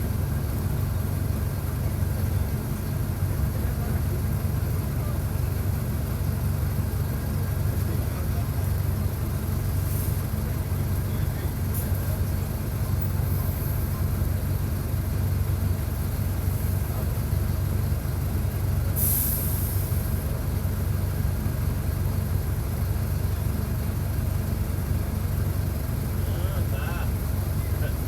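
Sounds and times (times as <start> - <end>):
diesel bus engine running: 0.0 - 28.0
compressed air hiss: 19.0 - 19.8.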